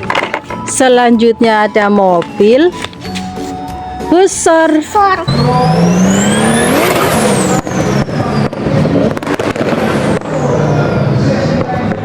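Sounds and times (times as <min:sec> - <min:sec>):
sports car engine revving: 0:05.2 - 0:11.6.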